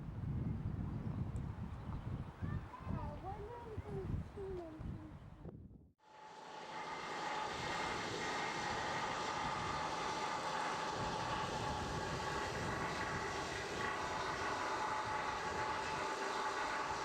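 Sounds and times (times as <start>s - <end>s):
locomotive engine rumble with whine: 6.4s - 17.0s.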